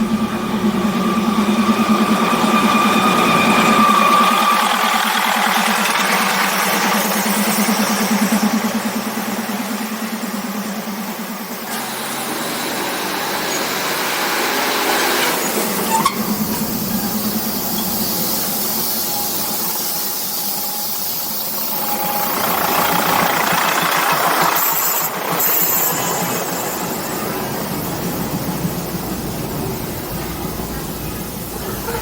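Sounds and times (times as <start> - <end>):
diesel train engine humming: 0.0 - 12.2, 12.9 - 32.0
high wheel squeal: 0.8 - 8.0, 11.7 - 32.0
train wheels clattering: 14.8 - 32.0.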